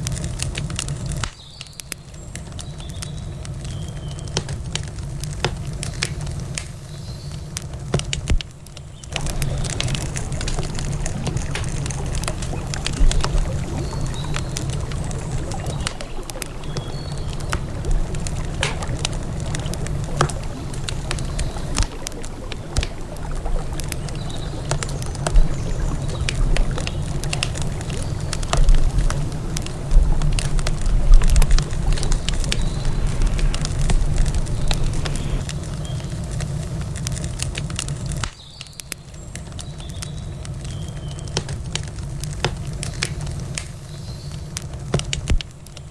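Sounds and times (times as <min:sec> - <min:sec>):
campfire crackling and popping: 0:00.0 - 0:45.9
low rumble: 0:09.2 - 0:35.8.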